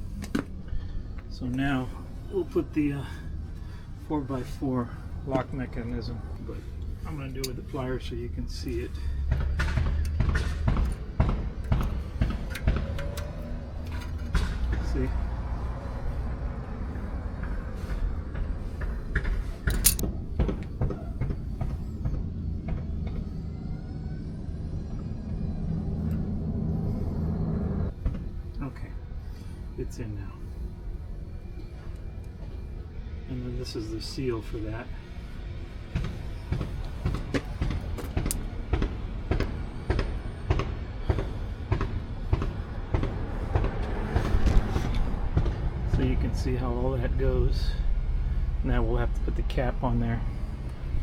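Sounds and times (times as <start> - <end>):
low steady rumble: 0.0 - 51.0
steady low hum: 0.0 - 51.0
metal clicks of hub mechanism: 11.6 - 15.0, 19.6 - 20.1
light metal clicks and taps: 19.6 - 20.7.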